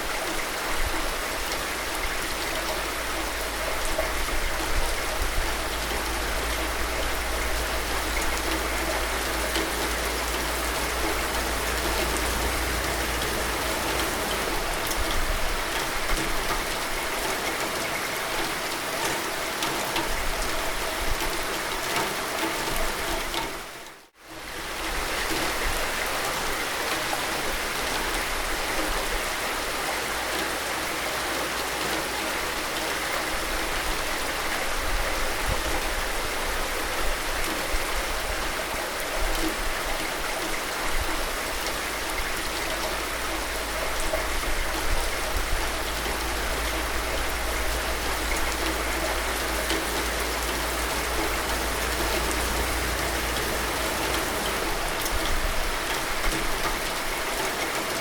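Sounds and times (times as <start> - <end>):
steady rain hiss: 0.0 - 58.0
low rumble: 5.0 - 16.4, 45.3 - 56.0.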